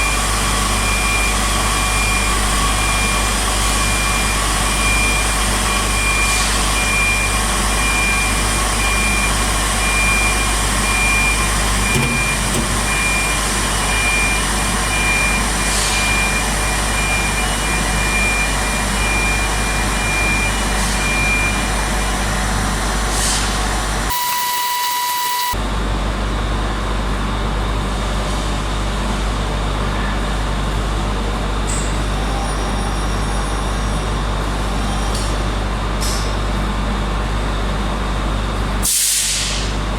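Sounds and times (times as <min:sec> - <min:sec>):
industrial machinery hum: 0:00.0 - 0:39.9
high electronic warning beeps: 0:00.8 - 0:21.7, 0:24.1 - 0:25.6.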